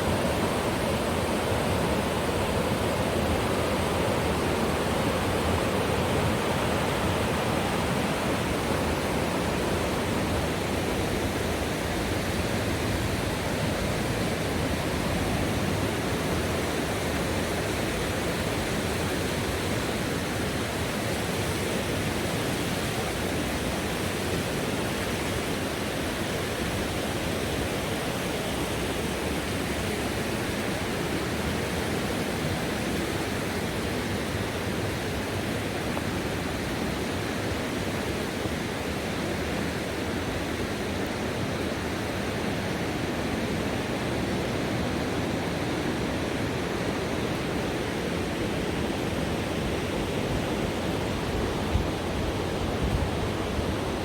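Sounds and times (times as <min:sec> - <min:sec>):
river whitewater rushing: 0:00.0 - 0:54.0.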